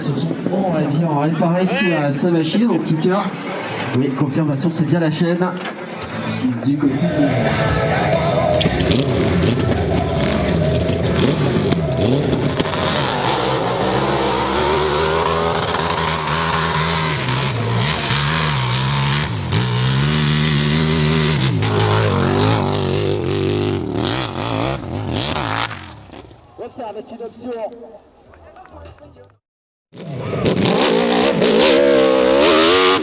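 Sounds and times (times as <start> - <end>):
motorcycle engine revving hard: 8.6 - 26.2, 30.0 - 33.0.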